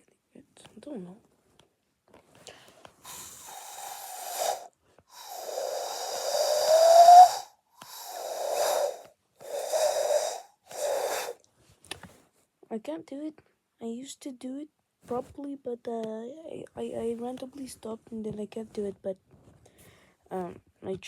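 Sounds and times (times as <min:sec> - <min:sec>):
person blowing breathy owl hoots: 0:03.1 - 0:11.4.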